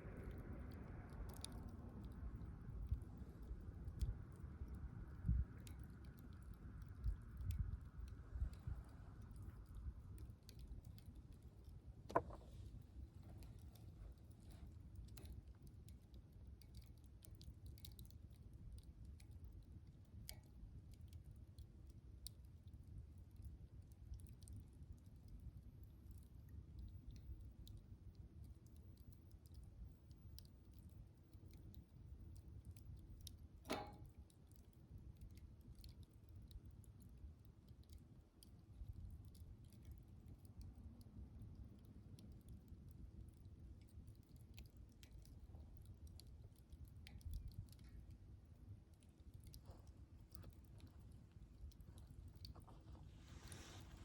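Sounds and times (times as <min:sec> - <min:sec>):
campfire crackling: 0:00.1 - 0:54.0
fire pops: 0:05.5 - 0:18.2, 0:33.2 - 0:34.6.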